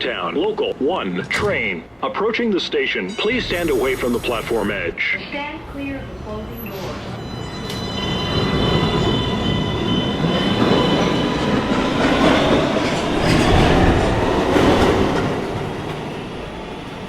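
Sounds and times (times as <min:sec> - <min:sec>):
subway train running on rails: 0:00.0 - 0:17.0
train clatter: 0:02.8 - 0:17.0.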